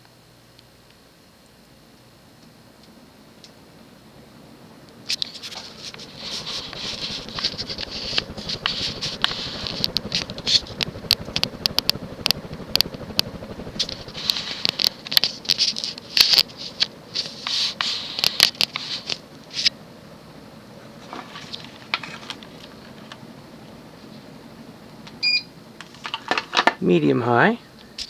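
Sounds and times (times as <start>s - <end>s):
ceiling fan rushing hiss: 0.0s - 28.0s
sharp clicks and crackles: 4.9s - 19.8s.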